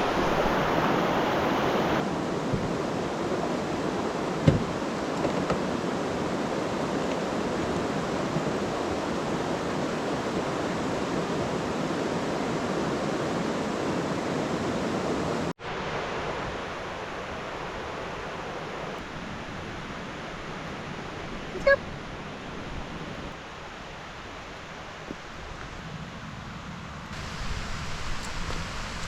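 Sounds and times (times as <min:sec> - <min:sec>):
heavy rain: 0:00.0 - 0:05.1, 0:27.1 - 0:29.0.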